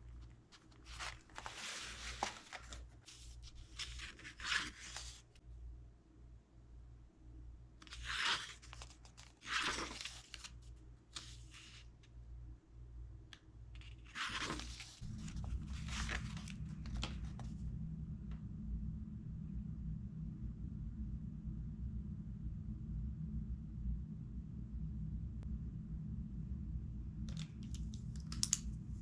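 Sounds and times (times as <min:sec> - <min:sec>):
paper rustling: 0:00.0 - 0:05.4, 0:07.8 - 0:11.8, 0:13.8 - 0:17.6
steady low hum: 0:00.0 - 0:29.0.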